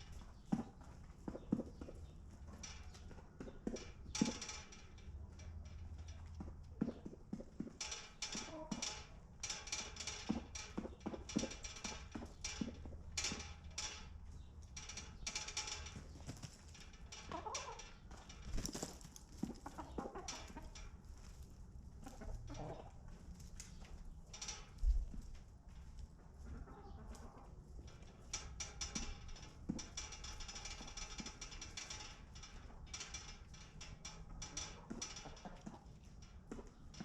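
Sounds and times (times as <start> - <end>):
chickens clucking: 0.0 - 4.4, 6.1 - 9.0, 15.9 - 24.6, 26.1 - 28.3, 34.6 - 37.0
scratchy clicks and rustles: 0.0 - 37.0.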